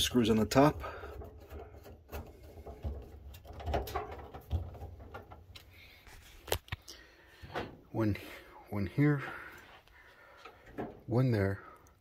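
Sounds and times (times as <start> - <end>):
knocks and clicks on metal panels: 0.6 - 5.6.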